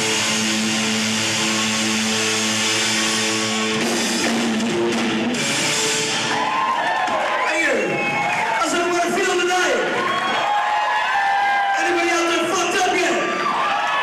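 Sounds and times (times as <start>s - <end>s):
electric guitar: 0.0s - 8.5s
drums: 0.0s - 14.0s.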